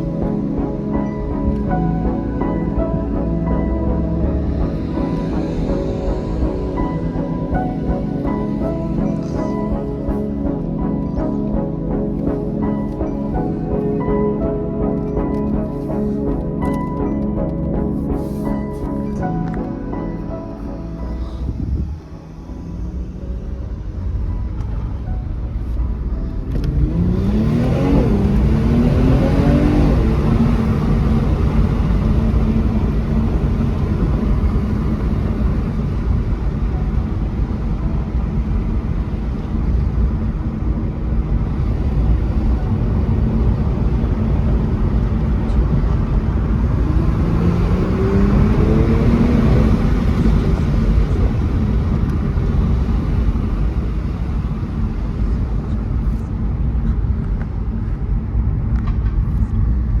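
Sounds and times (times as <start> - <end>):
car engine running: 0.0 - 60.0
road noise: 0.0 - 60.0.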